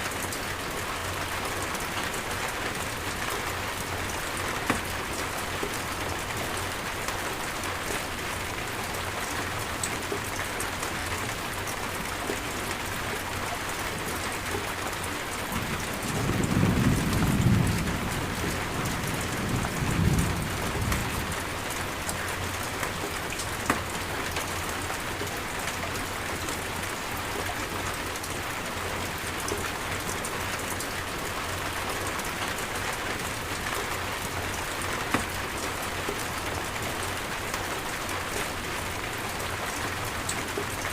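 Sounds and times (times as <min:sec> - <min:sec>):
steady rain falling: 0:00.0 - 0:40.9
low rolling thunder: 0:15.5 - 0:21.6.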